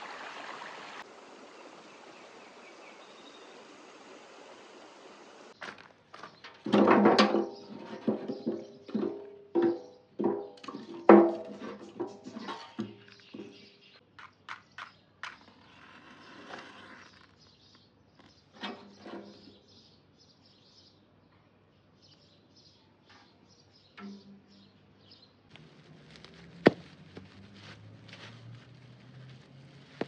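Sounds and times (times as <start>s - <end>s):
small birds chirping: 0.6s - 6.5s, 7.4s - 27.4s.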